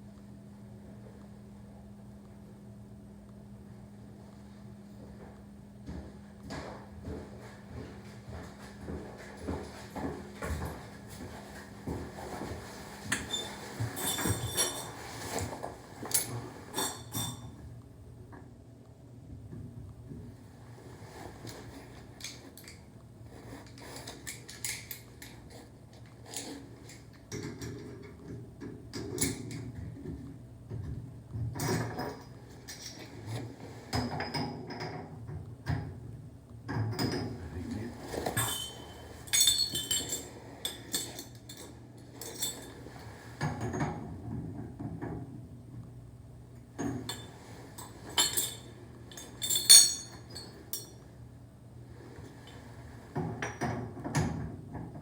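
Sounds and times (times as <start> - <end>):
hand tools clinking on metal: 38.2 - 42.8, 46.8 - 51.0
high metallic rings: 38.4 - 42.8, 47.1 - 51.0.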